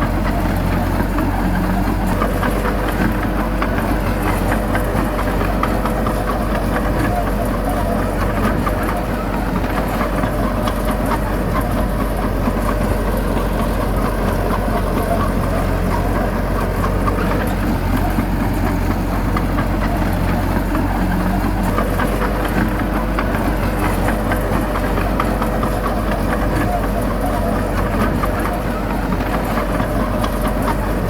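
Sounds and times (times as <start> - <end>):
heavy diesel engine running: 0.0 - 31.0.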